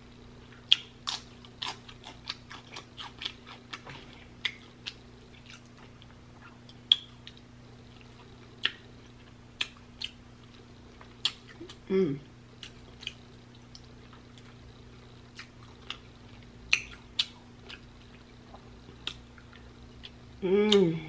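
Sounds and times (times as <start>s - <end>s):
chewing ribs with mouth clicks: 0.5s - 11.8s, 12.6s - 14.6s, 15.3s - 20.8s
mouth clicks and smacks: 16.7s - 17.8s.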